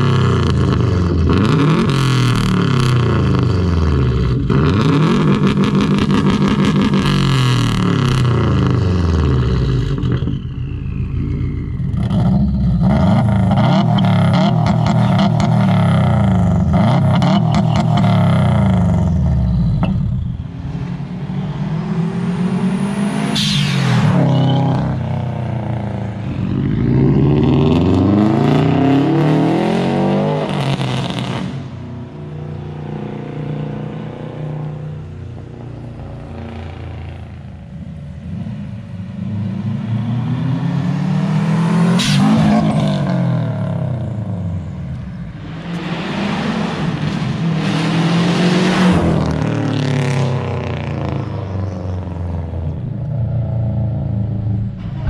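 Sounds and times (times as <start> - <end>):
car engine exhaust revving: 0.0 - 38.4.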